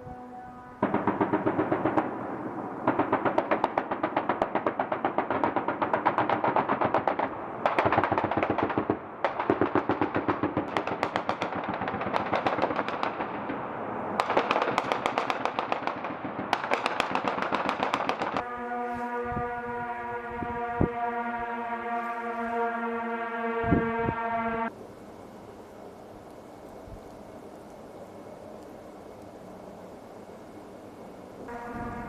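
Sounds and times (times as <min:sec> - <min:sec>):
machine-gun fire: 0:00.8 - 0:18.4.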